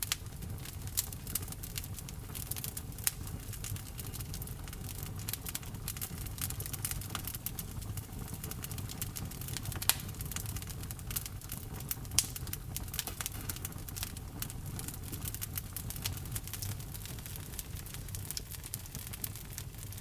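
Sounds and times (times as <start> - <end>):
log fire popping and snapping: 0.0 - 20.0
low fire rumble: 0.0 - 20.0
loud wood snaps: 9.8 - 10.4, 12.2 - 15.0.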